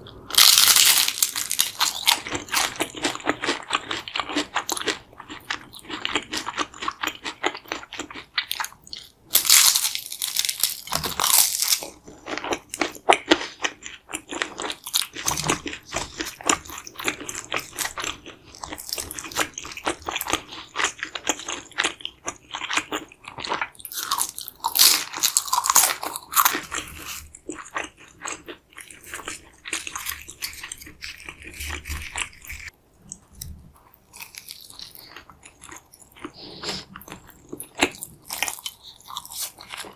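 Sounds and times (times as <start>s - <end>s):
crunching and chewing food: 0.1s - 39.9s.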